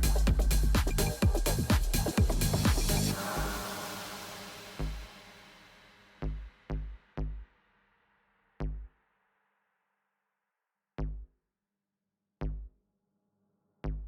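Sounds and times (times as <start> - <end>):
electronic music kick drum hits: 0.0 - 3.8.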